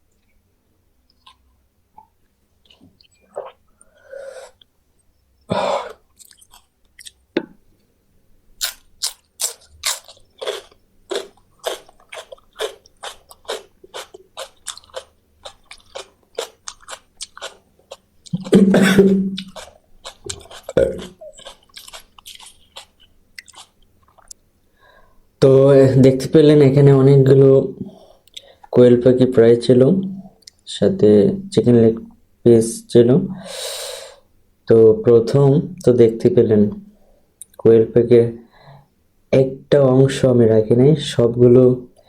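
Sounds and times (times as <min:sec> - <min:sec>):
person chewing crunchy bones: 0:06.1 - 0:07.2, 0:08.6 - 0:24.4.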